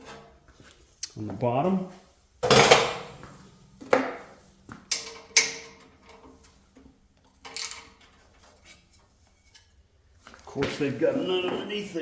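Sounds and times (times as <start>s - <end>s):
tools clattering: 2.4s - 3.3s, 4.9s - 9.8s.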